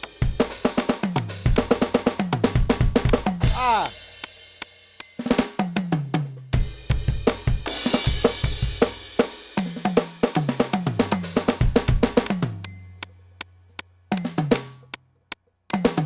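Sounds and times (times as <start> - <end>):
electronic drum kit playing: 2.6 - 3.9.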